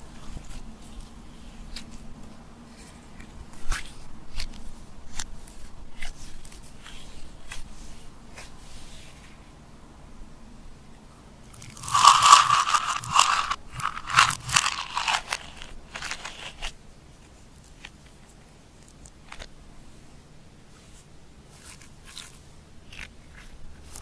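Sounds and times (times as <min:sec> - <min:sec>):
slime crunching and crackling: 0:11.6 - 0:16.6.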